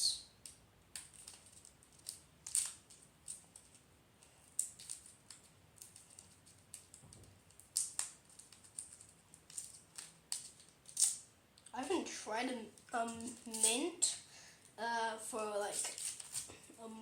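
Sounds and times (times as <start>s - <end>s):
wrapper crinkling: 15.6s - 16.6s.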